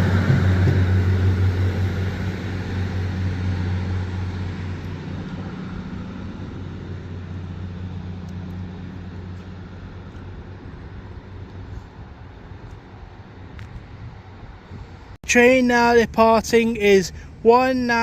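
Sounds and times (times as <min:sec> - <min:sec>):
diesel train engine hum: 0:00.0 - 0:18.0.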